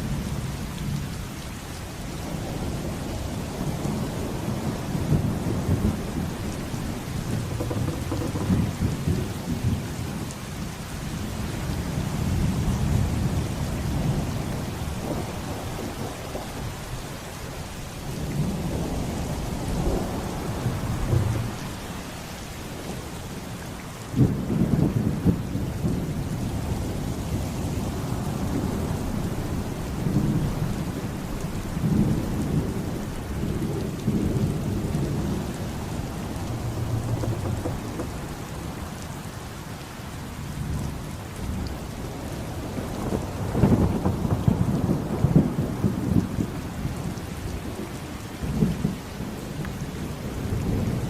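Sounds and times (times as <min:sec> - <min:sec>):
heavy rain: 0:00.0 - 0:51.0
thunder rumbling: 0:18.7 - 0:22.1.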